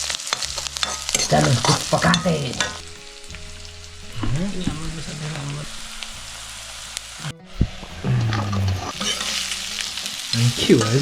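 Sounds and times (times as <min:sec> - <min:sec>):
food sizzling in oil: 0:00.0 - 0:11.0
voice or music-like tones: 0:04.0 - 0:06.2, 0:07.2 - 0:11.0.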